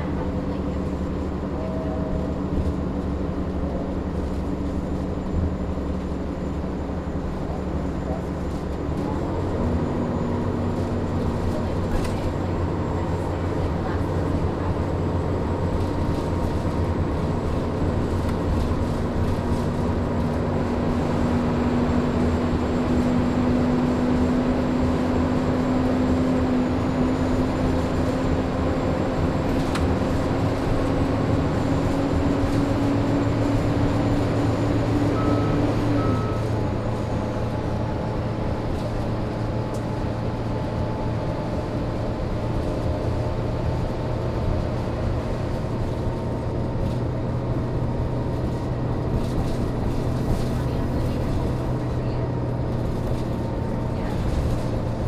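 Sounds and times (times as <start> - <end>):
bus diesel engine running: 0.0 - 55.0
short high beeps: 35.0 - 36.6.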